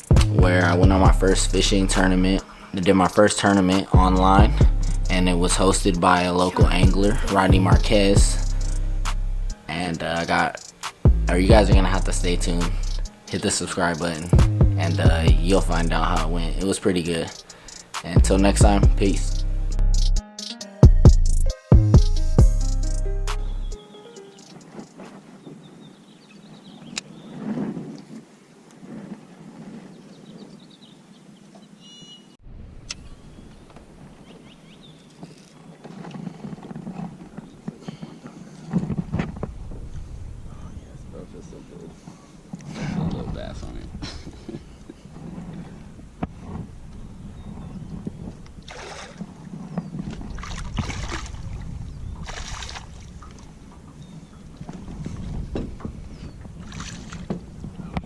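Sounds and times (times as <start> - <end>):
deeper rumble: 0.0 - 2.5, 3.9 - 9.6, 11.1 - 13.1, 14.1 - 16.7, 18.2 - 20.2, 39.0 - 42.0
low uneven rumble: 0.0 - 17.3, 36.3 - 58.0
wind on microphone: 3.5 - 9.6, 11.0 - 16.6, 24.5 - 31.5, 32.5 - 58.0
small birds chirping: 5.8 - 20.6, 23.4 - 27.5, 29.9 - 35.9, 47.0 - 48.6, 49.6 - 50.5, 53.2 - 56.7.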